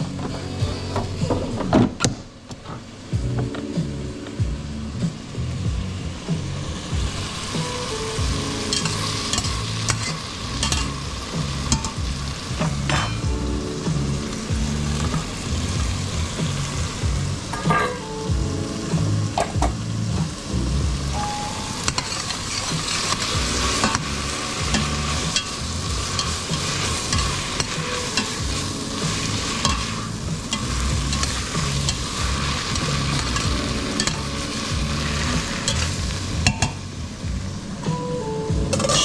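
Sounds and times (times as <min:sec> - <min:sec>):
food sizzling in a pan: 0:05.0 - 0:37.8, 0:38.7 - 0:39.0
utensil scraping a pan: 0:21.9 - 0:36.0, 0:38.8 - 0:39.0.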